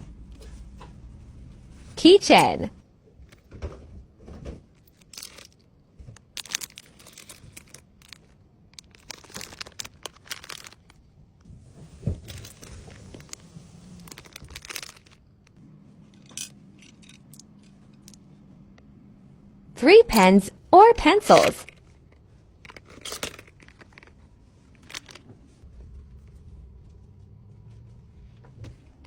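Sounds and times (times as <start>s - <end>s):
plastic packaging crinkling: 6.2s - 11.0s, 14.0s - 15.3s.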